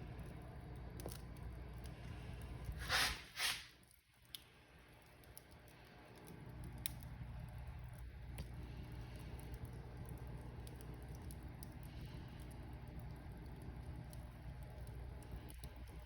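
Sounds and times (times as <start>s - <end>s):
fire crackling and popping: 0.0s - 16.0s
fire rumbling: 0.0s - 16.0s
hissing flares: 2.0s - 3.8s.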